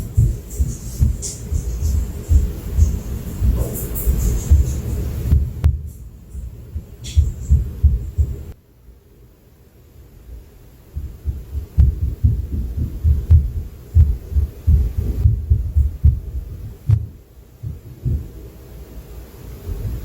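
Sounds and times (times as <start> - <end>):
dull thuds through ceiling: 0.0 - 8.6, 11.0 - 18.4.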